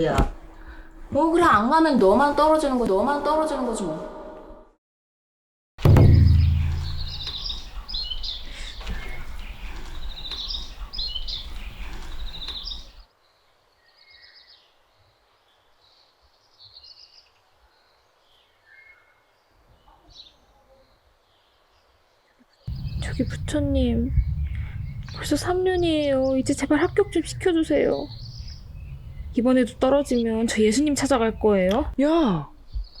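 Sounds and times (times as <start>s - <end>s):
low outdoor rumble: 5.8s - 8.1s, 22.7s - 32.0s
small birds chirping: 5.8s - 13.0s, 19.8s - 33.0s.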